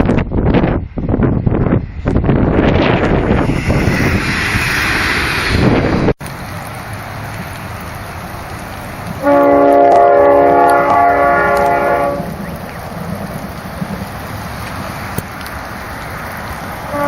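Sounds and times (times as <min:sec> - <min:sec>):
passing train rumble: 0:00.0 - 0:17.0
train horn blast: 0:09.2 - 0:12.4.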